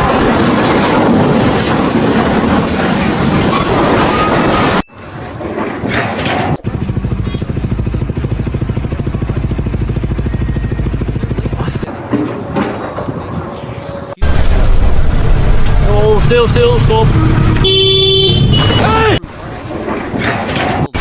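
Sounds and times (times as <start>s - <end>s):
engine running with fast beat: 6.6s - 12.0s.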